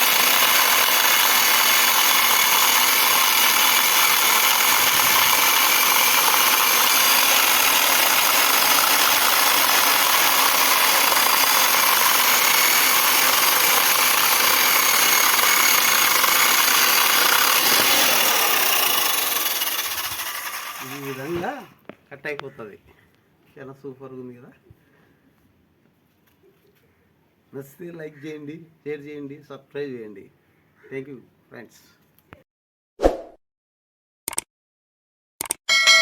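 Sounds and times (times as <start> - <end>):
electric chainsaw cutting wood: 0.0 - 21.7.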